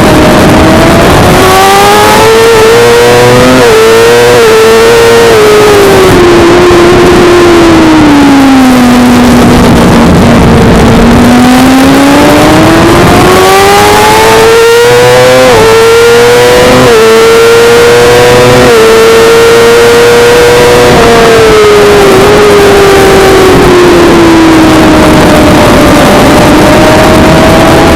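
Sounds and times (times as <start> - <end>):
motorcycle engine revving: 0.0 - 27.9.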